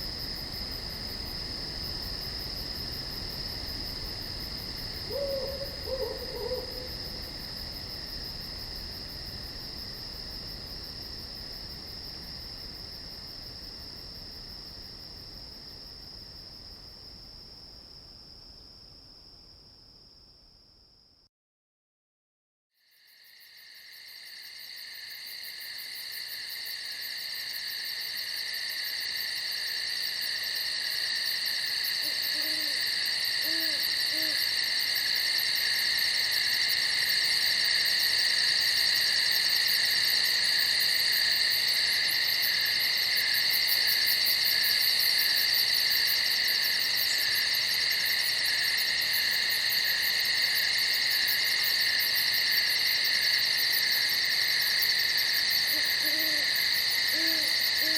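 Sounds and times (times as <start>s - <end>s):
crickets trilling: 0.0s - 16.8s, 22.9s - 57.9s.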